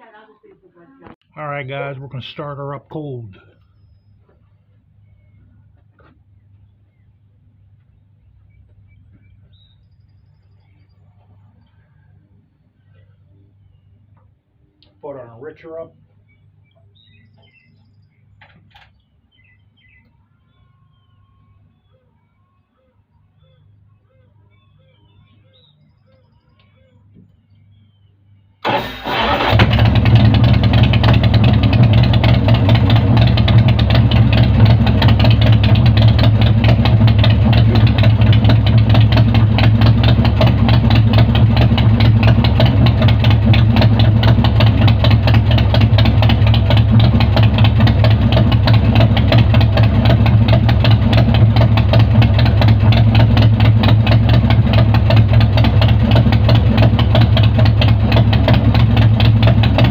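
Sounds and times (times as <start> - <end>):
motorcycle engine starting and idling: 28.6 - 59.9.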